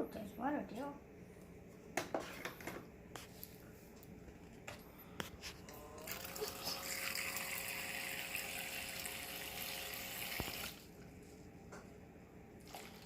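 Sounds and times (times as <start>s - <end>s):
small water pump whining: 5.2s - 11.0s, 12.6s - 13.0s.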